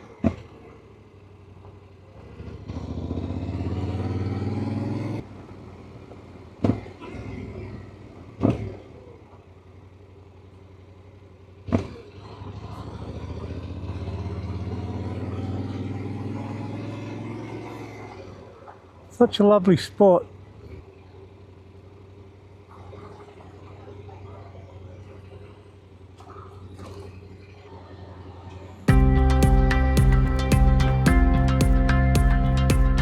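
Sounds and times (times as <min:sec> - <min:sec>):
motorcycle engine accelerating: 0:00.0 - 0:19.2, 0:20.2 - 0:33.0.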